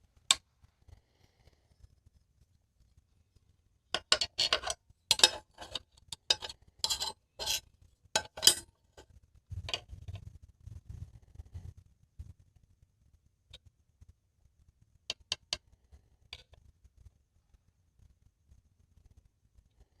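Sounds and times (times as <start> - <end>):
low knocks and handling noise: 8.2 - 11.6.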